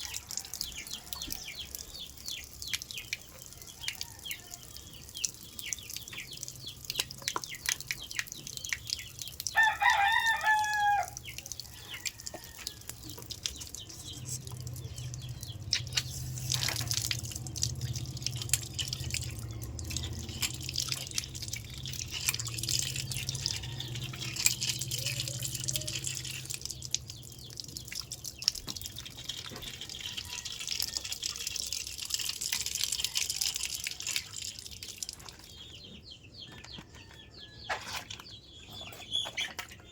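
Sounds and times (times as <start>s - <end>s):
small clicks and splashes: 0.0s - 39.9s
water dripping and trickling: 0.0s - 39.9s
rooster crowing: 9.6s - 11.2s.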